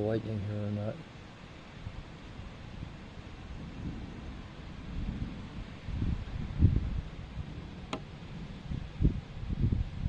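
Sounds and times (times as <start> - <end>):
wind buffeting microphone: 1.7 - 10.0.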